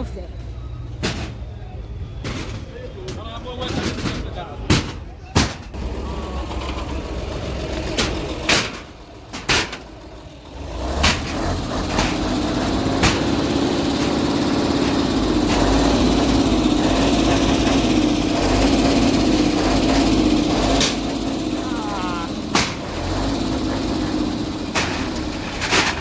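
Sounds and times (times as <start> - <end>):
heavy machine engine running: 5.6 - 26.0
sharp impact bangs: 7.7 - 26.0.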